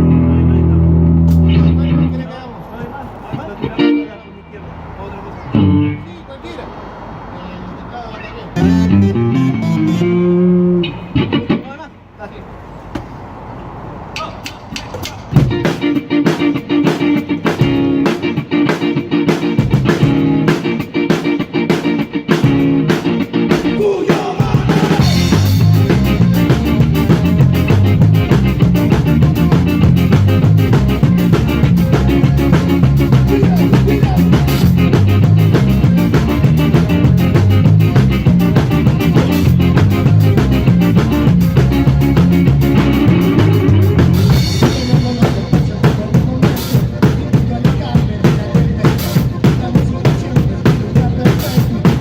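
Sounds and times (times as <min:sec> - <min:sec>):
electric guitar: 0:00.0 - 0:02.2, 0:05.5 - 0:06.1, 0:08.6 - 0:11.6, 0:15.3 - 0:52.0
bass guitar: 0:00.0 - 0:02.4, 0:04.8 - 0:06.2, 0:08.6 - 0:11.7, 0:15.3 - 0:52.0
drum kit: 0:14.2 - 0:52.0.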